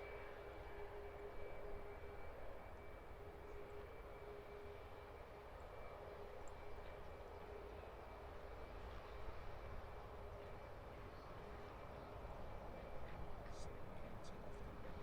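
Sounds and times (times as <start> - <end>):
jet engine whine: 0.0 - 15.0.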